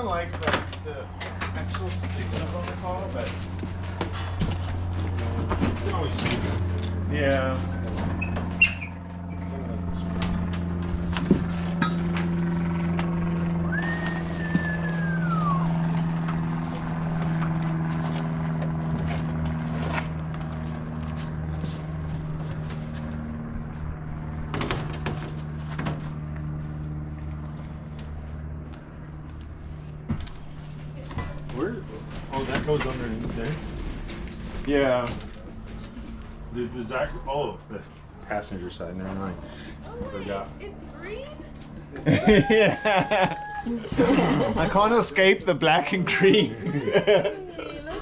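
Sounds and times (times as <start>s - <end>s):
falling whistle-like tone: 13.6s - 15.9s.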